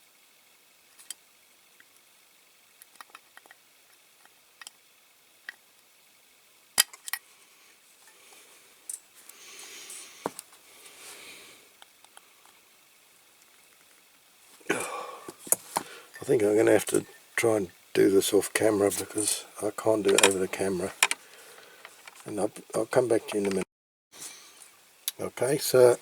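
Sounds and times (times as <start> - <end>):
rustling and scraping: 15.3 - 17.2, 18.6 - 22.4
clicks of toy metal levers: 20.1 - 20.4.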